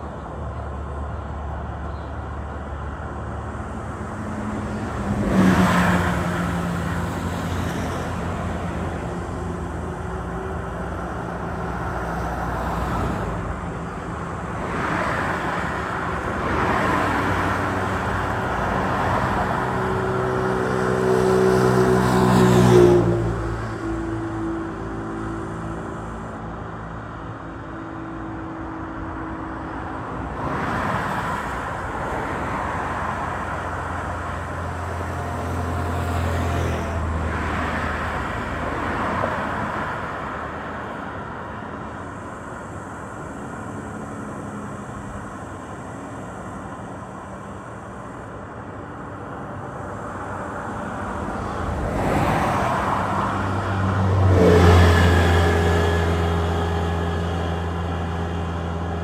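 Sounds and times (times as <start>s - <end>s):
highway traffic noise: 0.0s - 59.0s
vehicles passing close: 0.0s - 59.0s.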